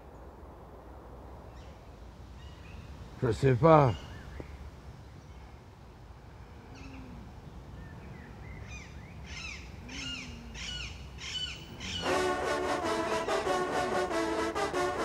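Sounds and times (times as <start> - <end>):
birds calling: 2.4 - 5.6, 6.6 - 15.0
faint low bird call: 6.4 - 12.1.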